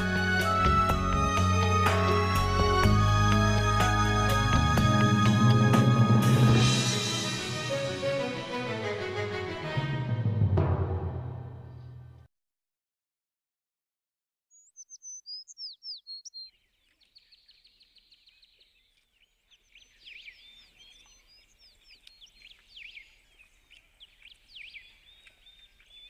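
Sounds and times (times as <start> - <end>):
birds chirping and trilling: 14.5 - 26.0.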